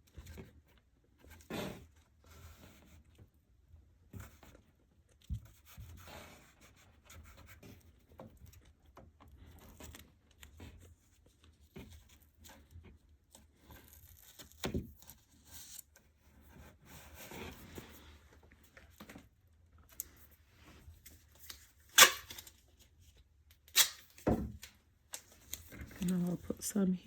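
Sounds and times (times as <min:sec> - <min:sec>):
tape pulled off roll and torn: 0:21.0 - 0:22.8, 0:23.5 - 0:26.0.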